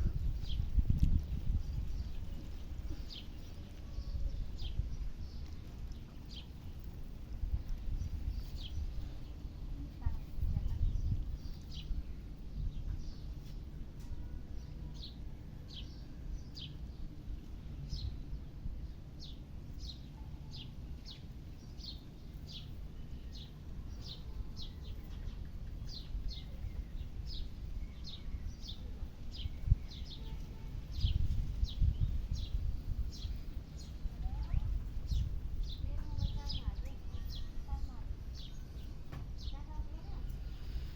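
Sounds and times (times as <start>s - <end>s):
bird chirping: 17.7s - 40.9s.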